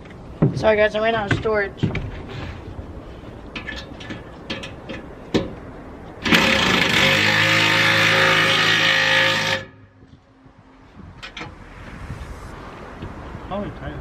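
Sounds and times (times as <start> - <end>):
power tool buzzing whir: 6.2 - 9.8.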